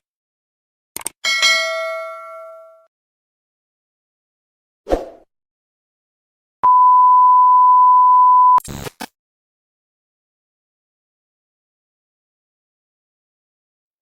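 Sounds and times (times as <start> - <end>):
steady electronic beep: 6.6 - 8.6.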